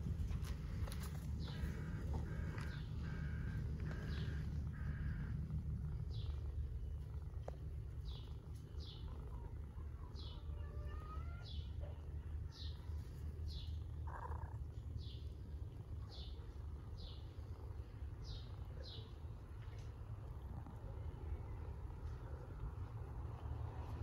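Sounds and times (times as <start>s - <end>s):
steady low rumble: 0.0s - 10.6s, 11.5s - 24.0s.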